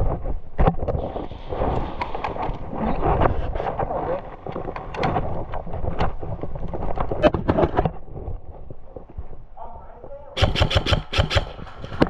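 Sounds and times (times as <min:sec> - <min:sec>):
sharp knocks: 0:10.4 - 0:12.0.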